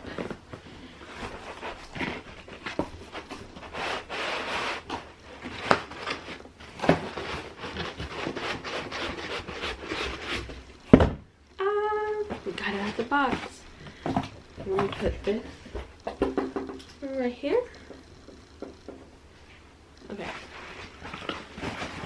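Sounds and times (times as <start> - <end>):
knocks and taps on cardboard: 16.1 - 16.8
cardboard box scraping and rustling: 20.2 - 22.0.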